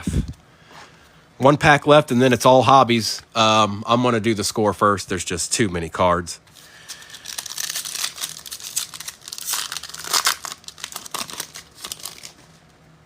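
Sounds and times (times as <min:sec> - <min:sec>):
plastic wrapper tearing and crinkling: 0:06.6 - 0:12.6.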